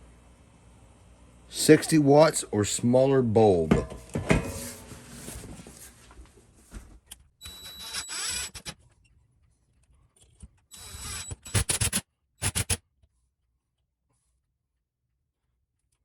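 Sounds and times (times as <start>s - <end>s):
rustling and scraping: 3.8s - 7.1s.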